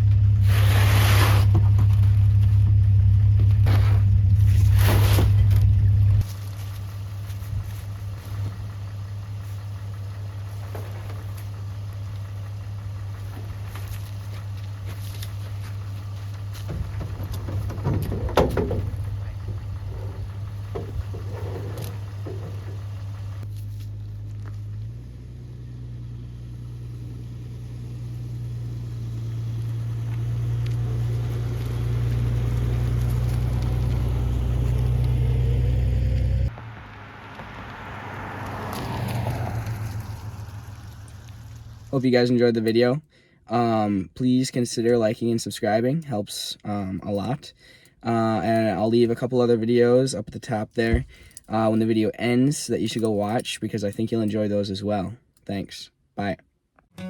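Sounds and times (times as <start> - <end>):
engine droning: 0.0 - 42.6
motor humming: 5.4 - 23.5.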